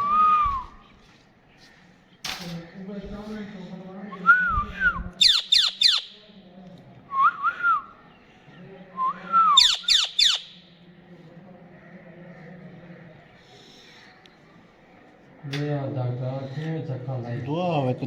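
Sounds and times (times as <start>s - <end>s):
parakeet shrill falling shrieks: 9.6s - 10.4s
parakeet whistles: 9.6s - 10.4s.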